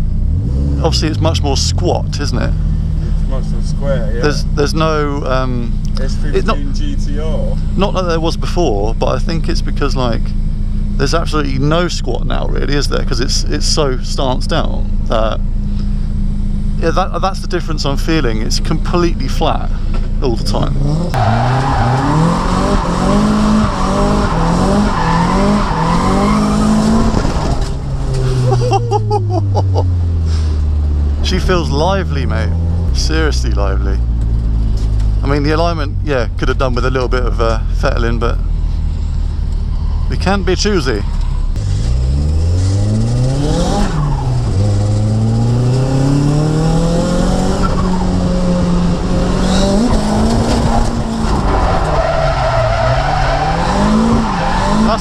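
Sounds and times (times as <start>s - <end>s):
car engine revving: 0.0s - 55.0s
tyre squeal: 20.7s - 28.7s, 49.4s - 55.0s.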